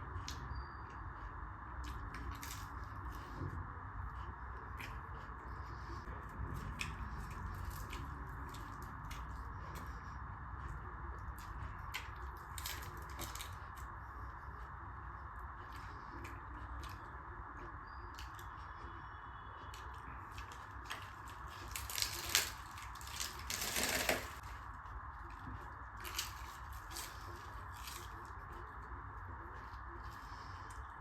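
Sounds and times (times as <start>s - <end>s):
steady background noise: 0.0s - 31.0s
person chewing food: 0.2s - 31.0s.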